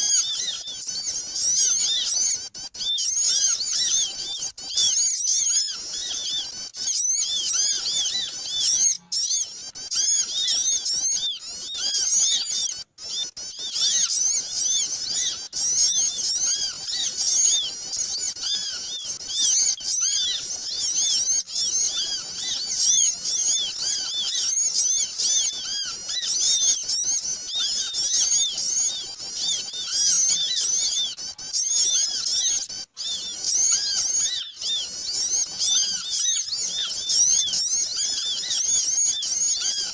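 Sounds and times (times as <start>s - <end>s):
many songbirds chirping: 0.0s - 39.9s.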